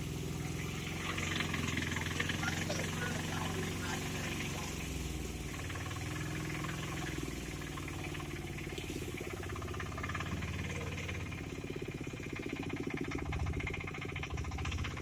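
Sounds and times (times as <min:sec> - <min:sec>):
engine running at low revs: 0:00.0 - 0:15.0.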